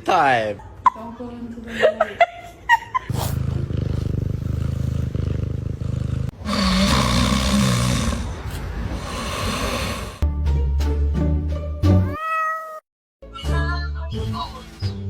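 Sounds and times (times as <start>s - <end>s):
cat purring: 3.1s - 10.2s
cat meowing: 12.0s - 12.8s.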